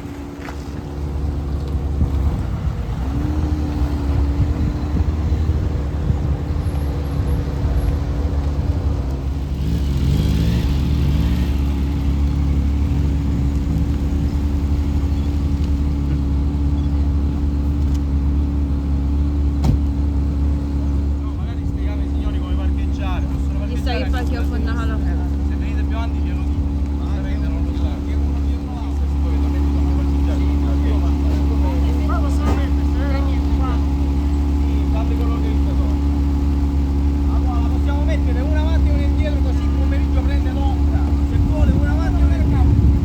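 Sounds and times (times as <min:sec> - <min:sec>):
car engines droning: 0:00.0 - 0:43.0.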